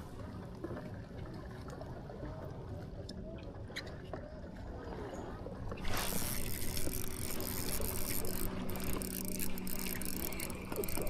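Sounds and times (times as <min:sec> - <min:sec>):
pedal drive gear hum: 0:06.0 - 0:11.0.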